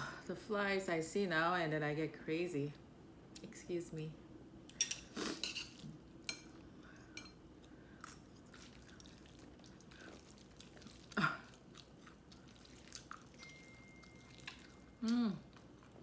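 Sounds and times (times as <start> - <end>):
chewing: 7.6 - 16.0.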